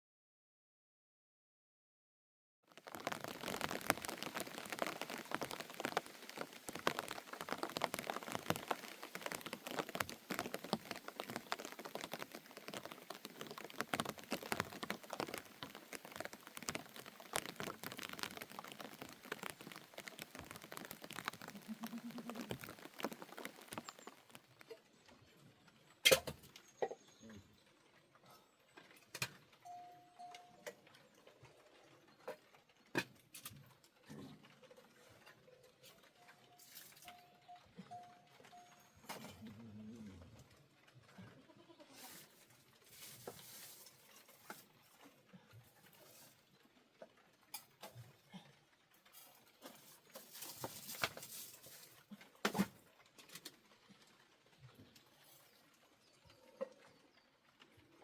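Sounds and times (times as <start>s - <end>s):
rain pattering: 2.6s - 58.0s
scattered drips: 2.7s - 25.0s, 34.9s - 41.2s.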